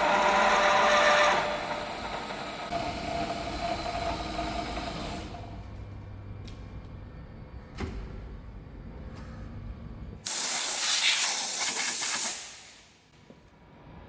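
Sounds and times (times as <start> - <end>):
milling machine hum: 0.0 - 6.4
compressed air hiss: 10.3 - 13.0.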